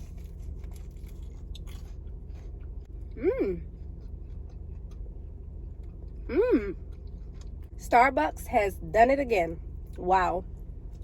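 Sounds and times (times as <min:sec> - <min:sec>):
person chewing food: 0:00.0 - 0:07.8
person humming mmm: 0:03.1 - 0:03.7, 0:06.3 - 0:06.8.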